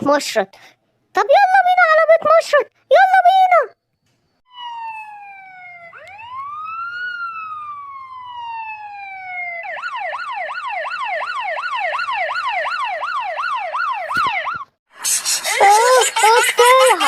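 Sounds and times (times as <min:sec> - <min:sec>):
emergency siren wail and yelp: 0:04.5 - 0:14.8.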